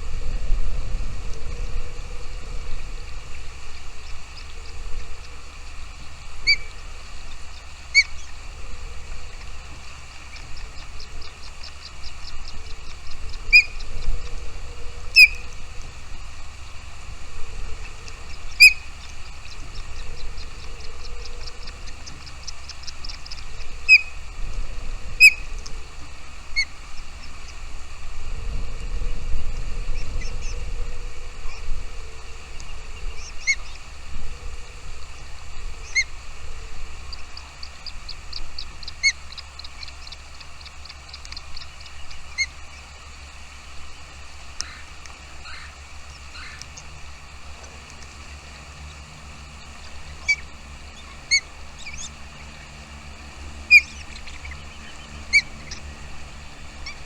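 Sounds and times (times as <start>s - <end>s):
low rumble: 0.0s - 44.6s
steady background hiss: 0.0s - 57.0s
small birds chirping: 1.5s - 28.0s, 28.6s - 57.0s.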